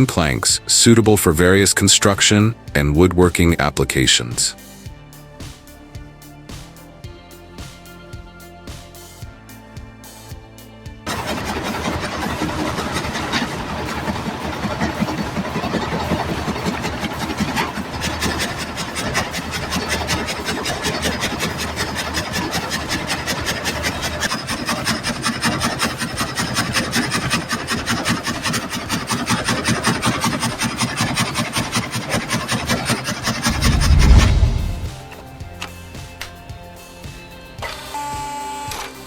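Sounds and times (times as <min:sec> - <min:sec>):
saw cutting through wood: 0:11.1 - 0:35.3
low rumble: 0:33.4 - 0:35.2.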